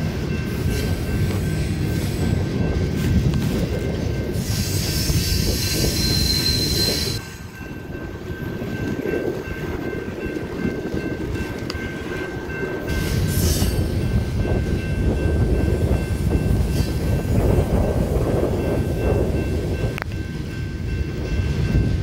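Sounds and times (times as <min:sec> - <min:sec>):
train wheels rumbling on rail: 0:00.0 - 0:22.0
high wheel squeal: 0:04.3 - 0:07.7.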